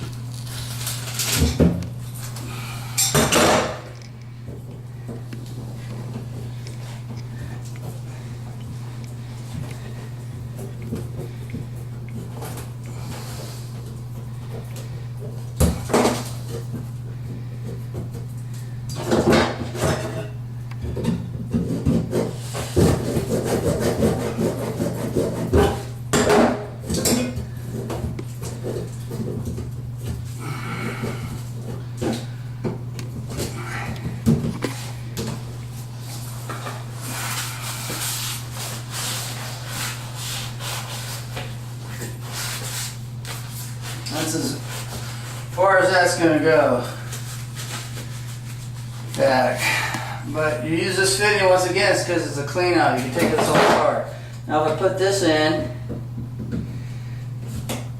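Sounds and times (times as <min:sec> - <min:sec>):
steady low hum: 0:00.0 - 0:57.9
scraping plastic pipe by hand: 0:21.4 - 0:26.0.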